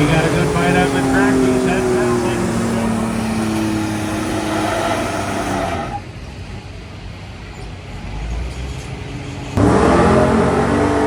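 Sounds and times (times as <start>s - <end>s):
pickup truck engine revving: 0.0s - 6.1s, 9.6s - 11.0s.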